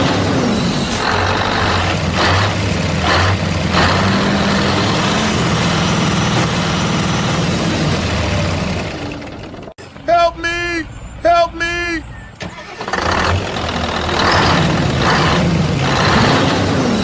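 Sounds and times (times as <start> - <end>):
heavy engine idling: 0.0 - 10.0, 12.5 - 16.2.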